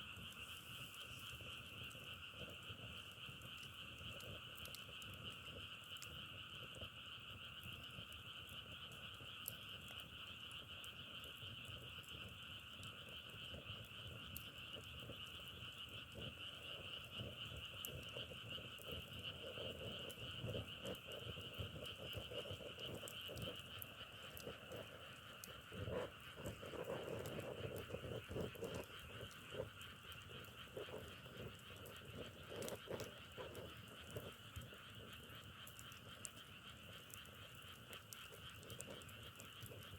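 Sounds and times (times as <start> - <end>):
frogs croaking close: 0.0 - 39.9
chorus of frogs calling: 0.1 - 39.9
faint clicks: 0.2 - 7.0, 7.6 - 39.9.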